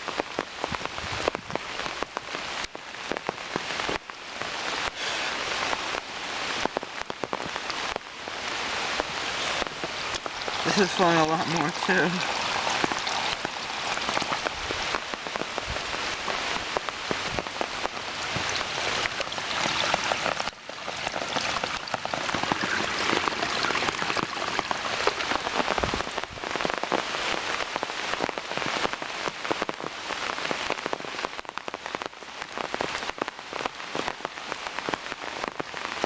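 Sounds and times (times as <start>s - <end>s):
heavy rain falling: 1.6s - 36.0s
water flowing: 7.4s - 26.9s.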